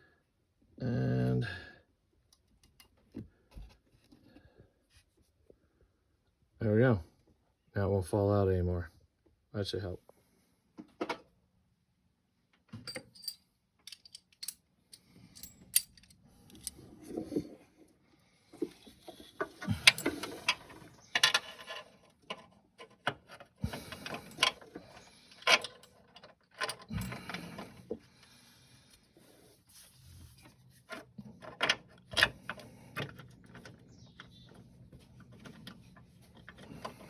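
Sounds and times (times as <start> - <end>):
hand tools clicking and clanking: 12.8 - 16.8, 19.3 - 28.0.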